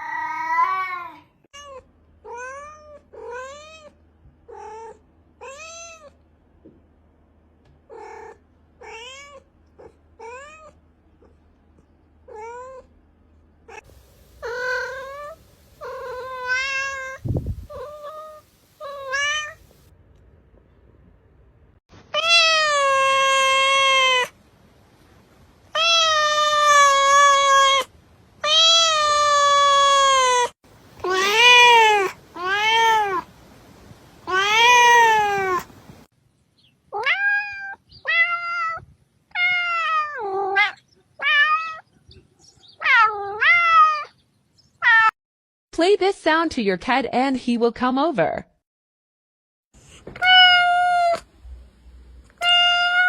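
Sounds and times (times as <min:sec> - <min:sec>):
cat meowing: 0:00.0 - 0:06.2, 0:07.9 - 0:10.8, 0:13.7 - 0:19.8, 0:22.2 - 0:24.3, 0:25.8 - 0:33.3, 0:34.3 - 0:35.8, 0:37.0 - 0:41.8, 0:42.8 - 0:44.1, 0:44.8 - 0:45.2, 0:50.2 - 0:51.3, 0:52.4 - 0:53.0.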